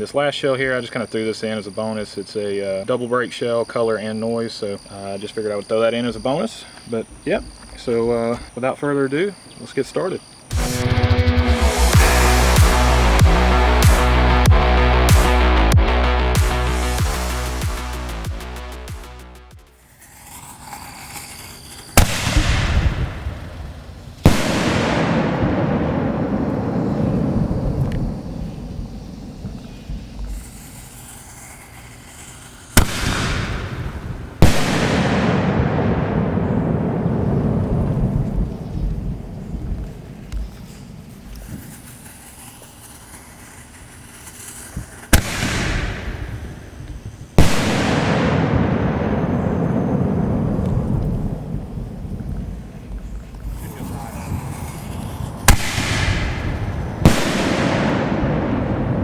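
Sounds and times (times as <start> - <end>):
faint fuse hiss: 19.6 - 59.0
loud firework bangs: 19.6 - 59.0
rumbling echo: 22.0 - 30.4, 32.8 - 40.3, 47.4 - 59.0
firework salute report: 53.4 - 58.0.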